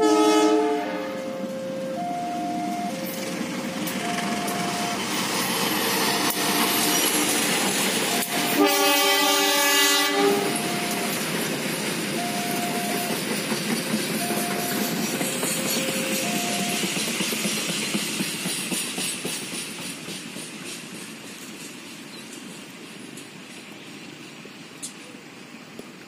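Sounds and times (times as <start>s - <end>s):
train horn blast: 0.0s - 5.0s, 6.0s - 7.2s, 8.1s - 11.2s
train wheels on rails: 0.0s - 26.0s.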